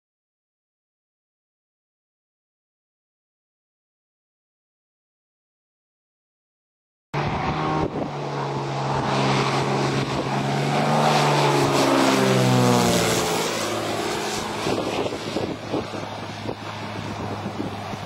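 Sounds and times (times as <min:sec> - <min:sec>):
propeller aircraft engine running: 0:07.2 - 0:18.0.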